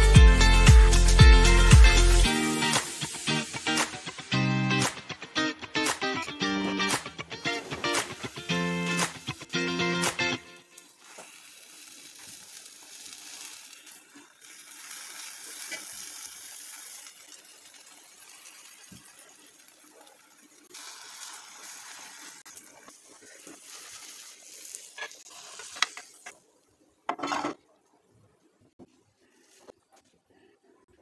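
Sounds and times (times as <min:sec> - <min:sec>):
omelette sizzling in oil: 0:02.1 - 0:04.4, 0:10.6 - 0:26.7
spatula scraping a pan: 0:27.1 - 0:27.6.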